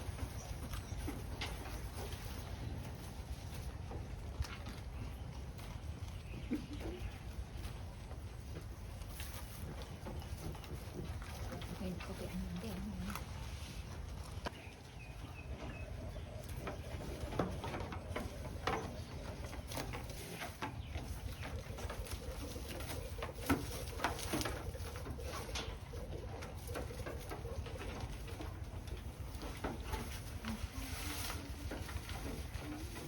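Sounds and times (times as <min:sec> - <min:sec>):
pigeons cooing: 0:15.5 - 0:29.9.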